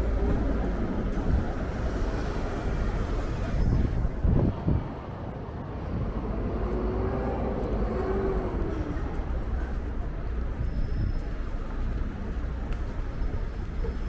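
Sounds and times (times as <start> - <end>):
street noise: 0.0 - 14.0
wind buffeting microphone: 0.0 - 14.0.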